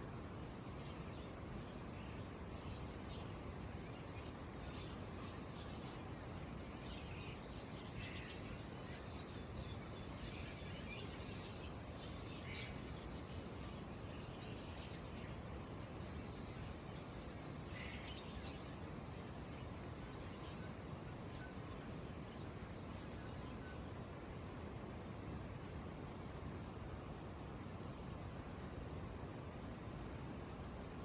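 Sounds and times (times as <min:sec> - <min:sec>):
bird market background noise: 0:00.0 - 0:31.0
high-pitched insect trill: 0:00.0 - 0:31.0
birds chirping: 0:00.4 - 0:24.4.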